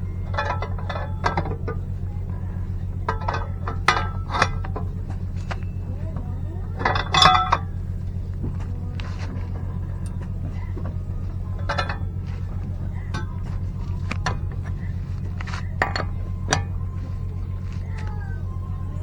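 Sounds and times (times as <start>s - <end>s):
steady low hum: 0.0s - 19.0s
metallic clinks of tools: 0.2s - 1.9s, 3.0s - 7.8s, 10.0s - 17.3s.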